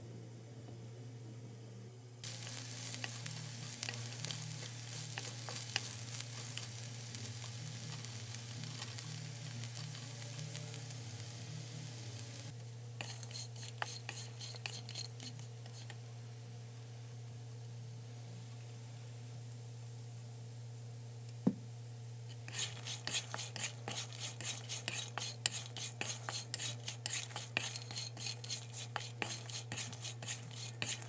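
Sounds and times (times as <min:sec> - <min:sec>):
steady low hum: 0:00.0 - 0:31.0
wooden spatula scraping pan: 0:02.2 - 0:09.1, 0:13.0 - 0:16.0, 0:22.4 - 0:31.0
potatoes sizzling in oil: 0:02.2 - 0:16.1, 0:22.3 - 0:31.0.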